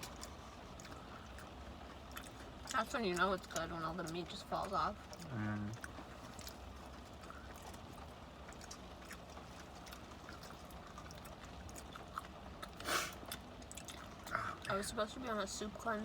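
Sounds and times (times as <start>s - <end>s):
person chewing: 0.0s - 2.7s, 5.1s - 14.7s
low steady hum: 0.0s - 16.0s.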